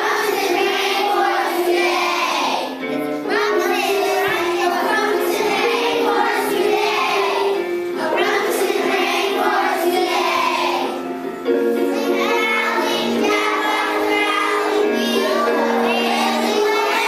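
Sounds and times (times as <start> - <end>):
children singing: 0.0 - 11.1, 11.7 - 17.0
musical accompaniment: 0.0 - 17.0.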